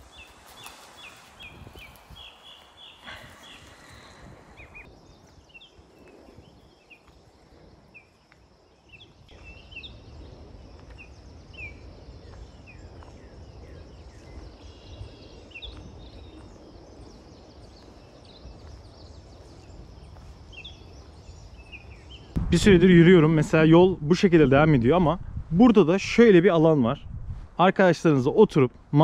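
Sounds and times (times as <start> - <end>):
small birds chirping: 0.0 - 22.4
low rumble: 22.3 - 25.6.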